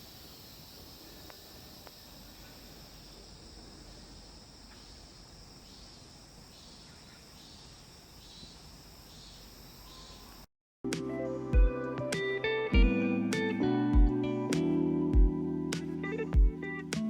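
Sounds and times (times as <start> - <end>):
crickets chirring: 0.0 - 10.5.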